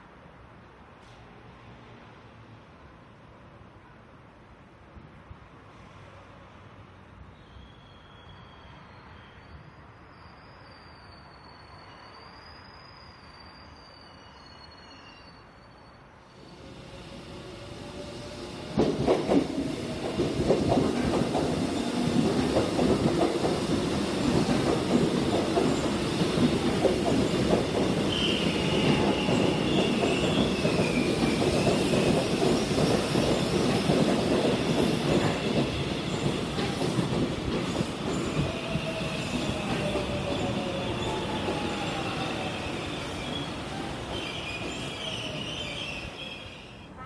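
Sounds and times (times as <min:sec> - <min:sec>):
high wheel squeal: 0:07.3 - 0:17.2, 0:38.0 - 0:46.9.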